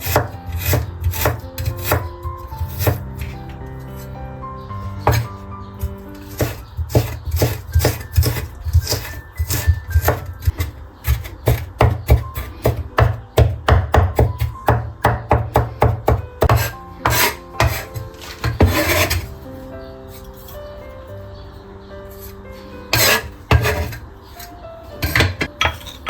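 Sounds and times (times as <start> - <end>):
knife chopping on wooden board: 0.0 - 3.4, 5.0 - 19.3, 23.0 - 24.0.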